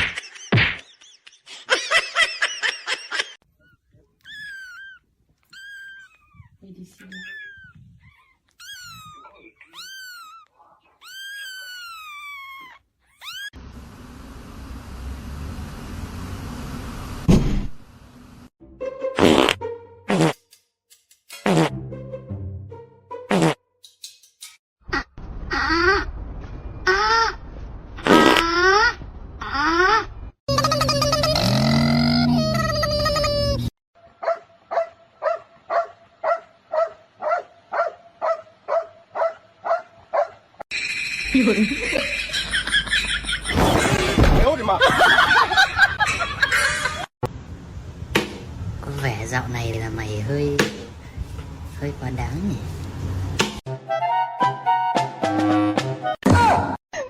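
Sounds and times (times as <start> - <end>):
dog yipping: 3.6 - 13.6, 34.2 - 40.4
cat meowing: 4.2 - 13.5
loud thump: 17.3 - 17.8, 43.5 - 44.5.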